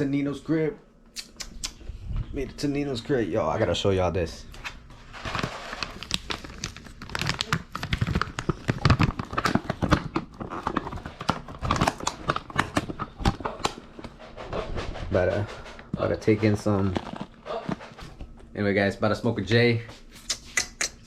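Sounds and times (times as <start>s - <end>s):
plastic packaging crinkling: 5.0s - 14.1s, 16.2s - 18.3s.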